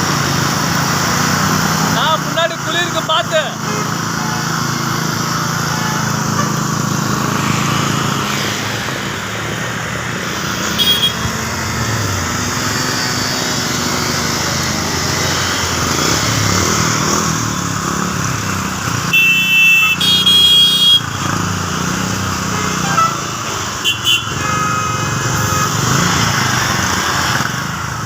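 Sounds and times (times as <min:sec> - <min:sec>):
motorcycles and traffic passing: 0:00.0 - 0:28.0
vehicle horn honks: 0:10.7 - 0:11.3, 0:19.1 - 0:21.2, 0:22.5 - 0:25.9.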